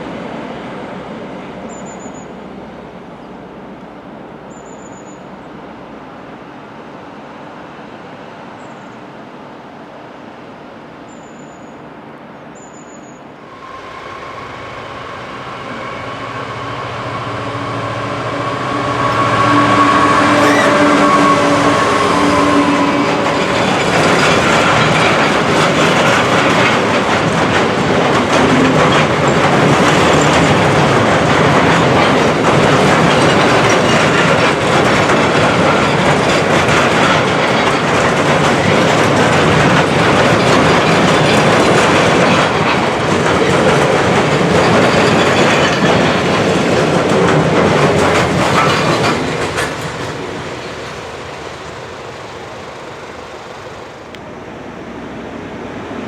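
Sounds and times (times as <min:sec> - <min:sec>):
train wheels clattering: 0:13.5 - 0:54.1.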